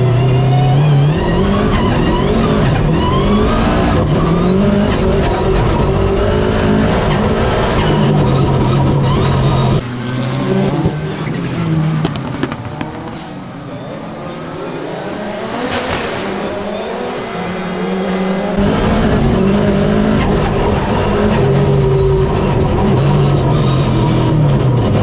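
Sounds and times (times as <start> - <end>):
rally car engine revving: 0.0 - 25.0
tyres squealing on loose surface: 9.8 - 18.6.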